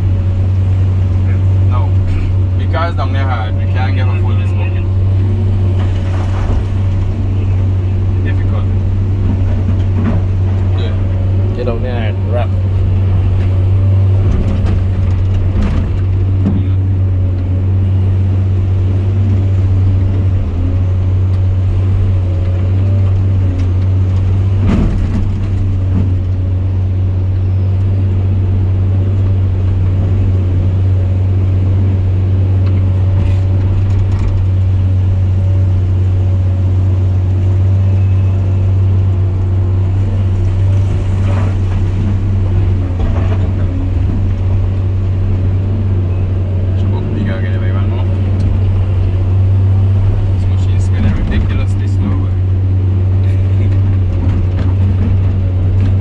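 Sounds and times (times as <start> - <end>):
loader engine droning: 0.0 - 56.0.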